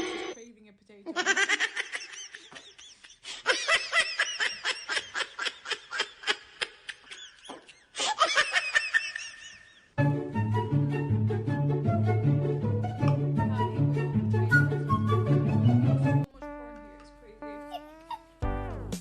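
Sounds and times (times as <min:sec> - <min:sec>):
high-pitched giggling laughter: 0:01.1 - 0:09.7, 0:16.5 - 0:18.4.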